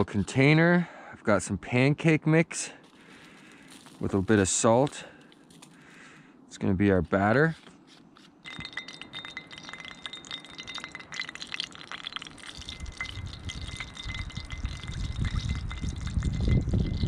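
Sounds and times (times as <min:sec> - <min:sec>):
meat frying in oil: 0:11.2 - 0:16.4.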